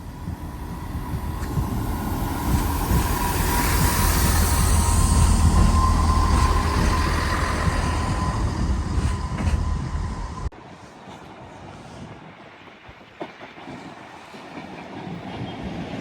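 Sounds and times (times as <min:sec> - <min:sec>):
train rumbling: 0:00.0 - 0:16.0
high-pitched train squeal: 0:00.4 - 0:10.5.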